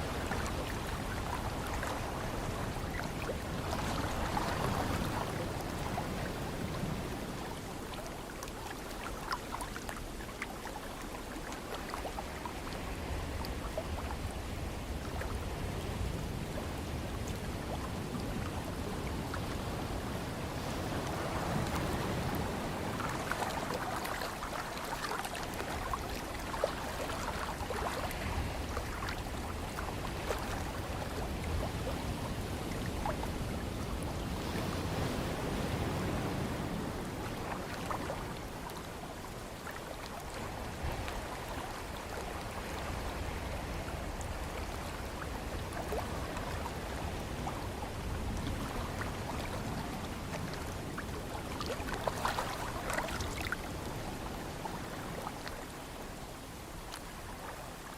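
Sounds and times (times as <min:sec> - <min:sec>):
waves washing: 0:00.0 - 0:57.9
small crackling splashes: 0:50.6 - 0:53.7.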